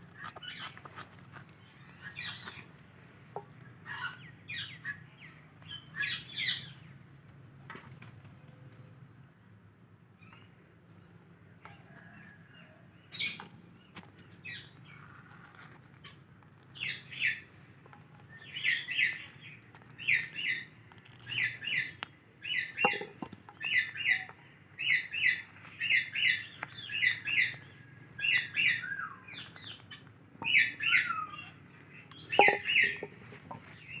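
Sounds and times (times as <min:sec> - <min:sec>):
parrot chirping: 0:28.3 - 0:31.5, 0:32.2 - 0:33.1.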